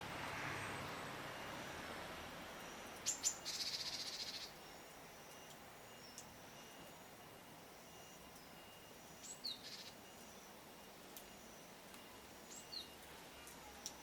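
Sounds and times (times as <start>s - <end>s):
thin high bird calls: 2.6s - 7.1s, 7.8s - 10.6s
buzzing bird trill: 2.6s - 10.6s.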